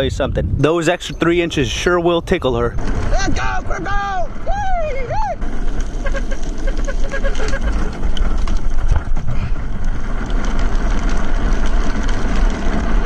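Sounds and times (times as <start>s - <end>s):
wind buffeting microphone: 0.0s - 5.7s
wheels rumbling: 0.0s - 13.0s.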